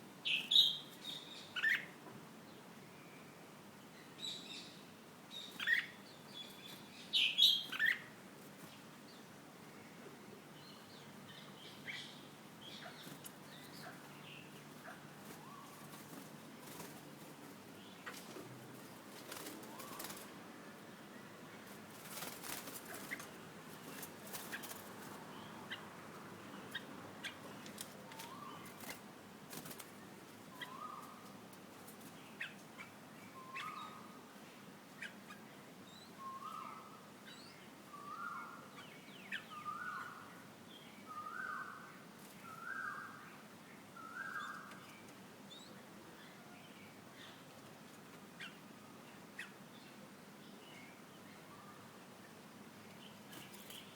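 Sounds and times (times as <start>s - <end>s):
rustles: 10.8s - 35.4s, 50.6s - 53.9s.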